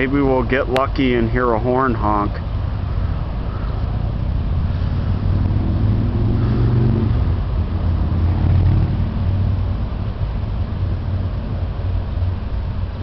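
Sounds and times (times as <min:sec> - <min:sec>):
car engine rumble: 0:00.0 - 0:13.0
road noise: 0:00.0 - 0:13.0.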